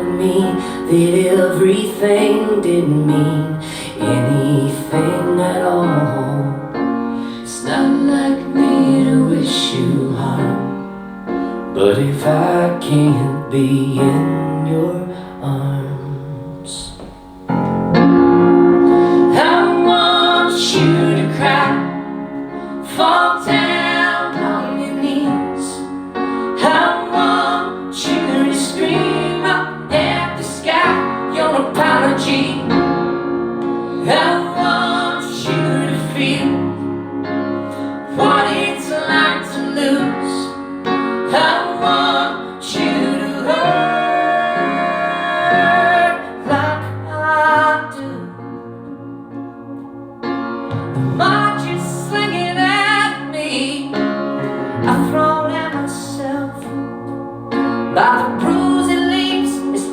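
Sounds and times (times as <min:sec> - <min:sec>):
piano accompaniment: 0:00.0 - 0:59.9
high singing voice: 0:18.8 - 0:32.8.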